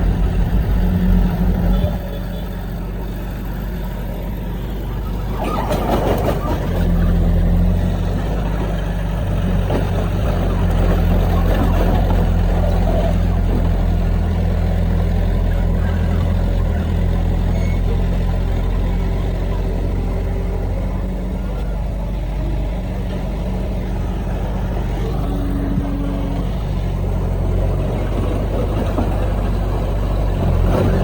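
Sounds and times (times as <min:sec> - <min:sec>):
diesel earthmoving machinery: 0:00.0 - 0:31.0.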